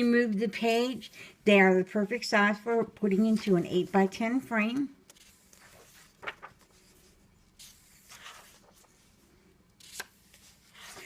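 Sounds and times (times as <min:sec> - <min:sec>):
paper pages rustling: 0:05.0 - 0:11.0.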